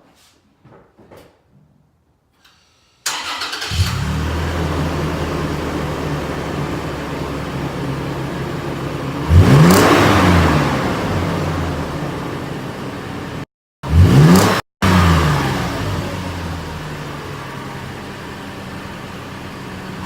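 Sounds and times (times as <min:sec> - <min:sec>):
car engine starting and idling: 0:03.0 - 0:20.0
engine revving: 0:03.1 - 0:17.4.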